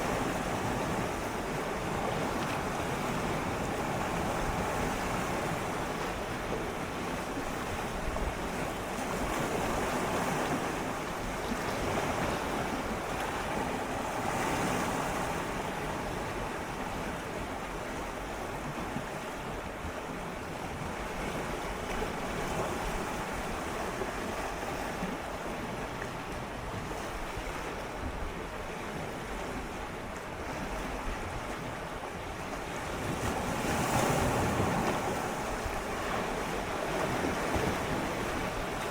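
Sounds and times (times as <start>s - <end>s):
sea waves lapping against rocks: 32.6s - 38.9s.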